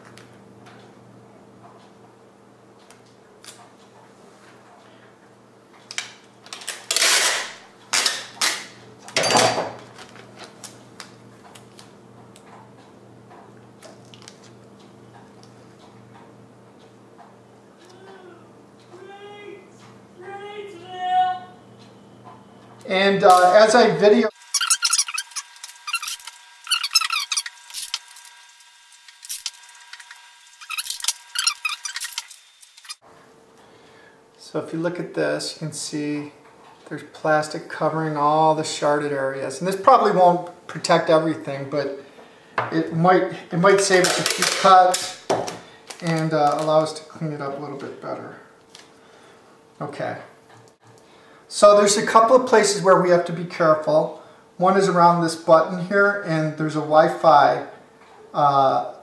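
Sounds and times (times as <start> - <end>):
packing tape pulled off roll: 6.5 - 8.7, 24.7 - 33.0, 44.0 - 46.9.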